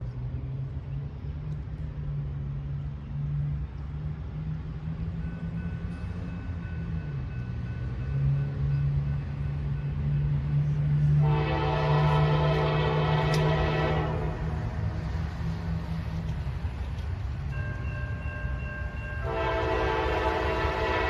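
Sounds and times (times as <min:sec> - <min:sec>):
diesel locomotive engine drone: 0:00.0 - 0:21.0.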